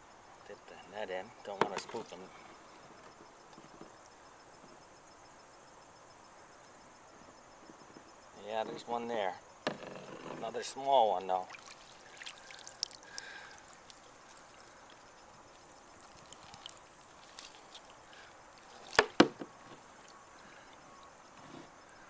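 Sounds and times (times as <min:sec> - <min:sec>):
water trickling and dripping: 0:10.7 - 0:22.0
sharp knocks: 0:18.9 - 0:19.8.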